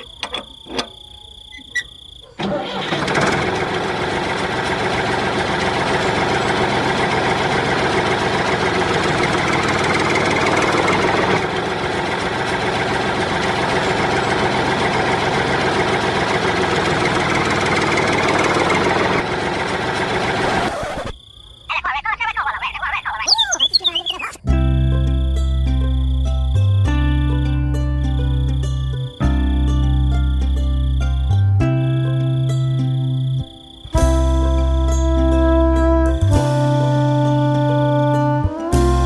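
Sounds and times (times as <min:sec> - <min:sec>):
small engine running: 0:02.4 - 0:21.1.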